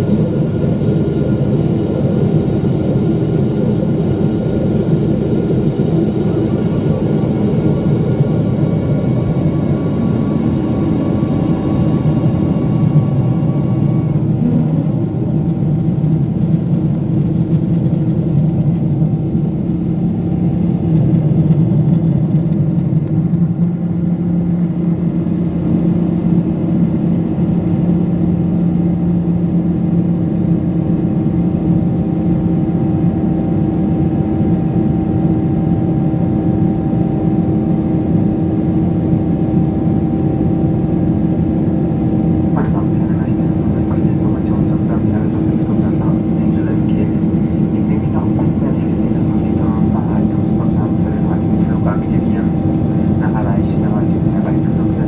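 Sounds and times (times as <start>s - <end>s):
steady hum tones: 0.0s - 16.7s, 41.2s - 55.0s
airliner engine drone: 0.0s - 55.0s.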